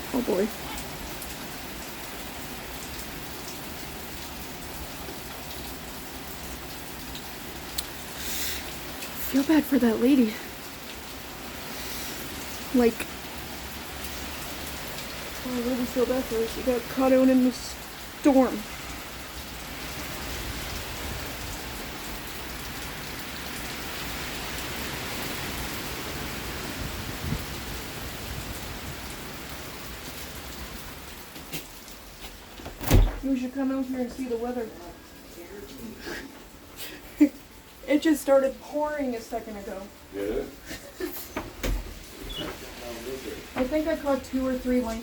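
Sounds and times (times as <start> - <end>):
heavy rain pouring: 0.0 - 45.0
raindrops ticking on surfaces: 0.0 - 45.0
faint raindrop ticks: 6.4 - 11.0, 43.5 - 45.0.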